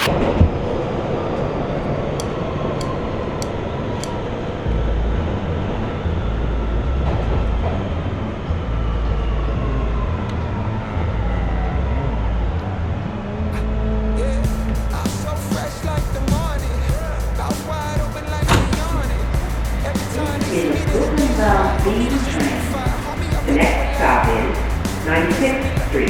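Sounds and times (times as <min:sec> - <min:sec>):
deeper rumble: 0:00.0 - 0:26.0
subway wheels rumbling on rail: 0:14.2 - 0:26.0.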